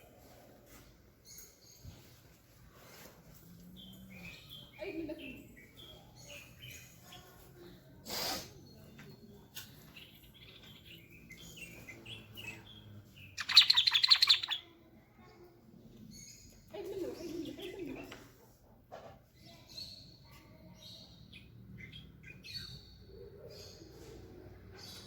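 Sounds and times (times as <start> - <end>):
bird chirping and singing: 3.7 - 7.8, 8.6 - 14.8, 19.4 - 24.1.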